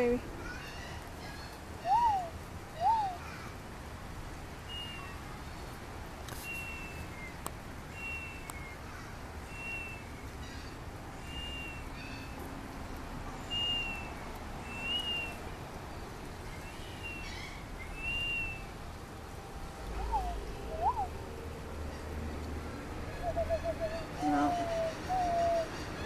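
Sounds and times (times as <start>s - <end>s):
bird whistled call: 1.8s - 3.2s, 7.9s - 8.8s, 9.5s - 10.1s, 11.2s - 11.9s, 13.5s - 14.1s, 14.7s - 15.4s, 17.0s - 18.6s, 20.0s - 21.2s, 23.2s - 25.7s.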